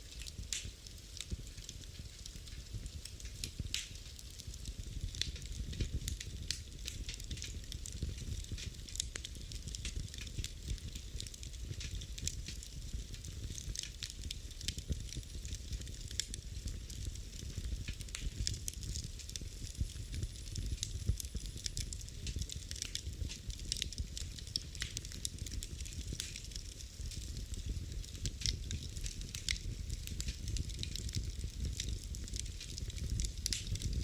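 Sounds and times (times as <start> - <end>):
fire crackles and pops: 0.0 - 34.0
low rumble of flames: 0.0 - 34.0.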